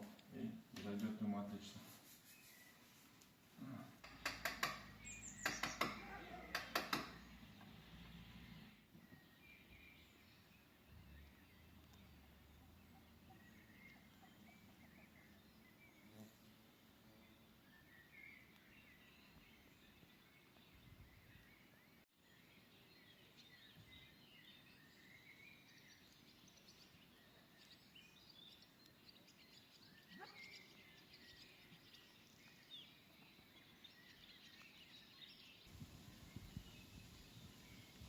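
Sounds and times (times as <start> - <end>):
faint distant birds chirping: 0.0 - 38.0.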